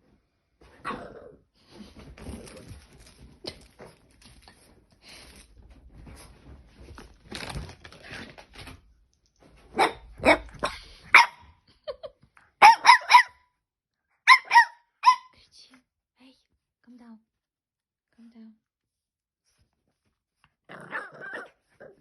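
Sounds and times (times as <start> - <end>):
faint rustling and scuffling: 1.6 - 9.8
puppy barking high-pitched: 9.7 - 11.5, 12.6 - 13.4, 14.2 - 15.4.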